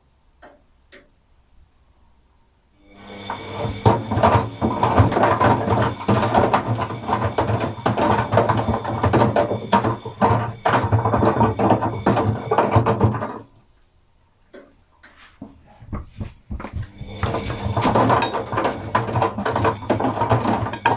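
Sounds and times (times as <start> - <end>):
washing machine motor running: 2.8 - 13.6, 16.1 - 20.9
objects knocking inside drum: 3.8 - 13.5, 15.9 - 20.9.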